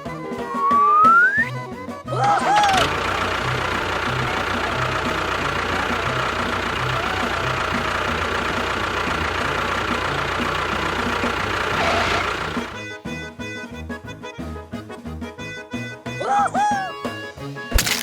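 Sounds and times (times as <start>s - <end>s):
small motor whining: 2.2s - 12.9s.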